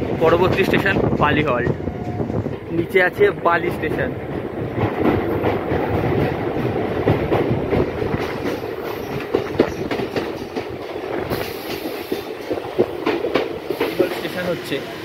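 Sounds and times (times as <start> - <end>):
train rumbling: 0.0 - 15.0
wheels clattering over rail joints: 3.8 - 14.5.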